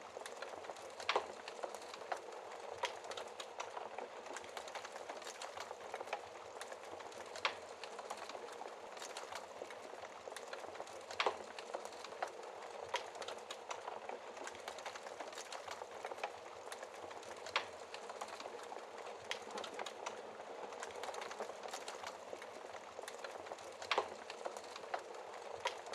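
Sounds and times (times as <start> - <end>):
wood fire crackling: 0.0 - 25.9.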